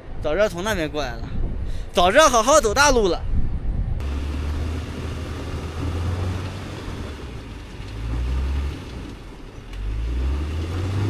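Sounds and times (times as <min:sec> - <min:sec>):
car engine revving: 0:04.0 - 0:11.0.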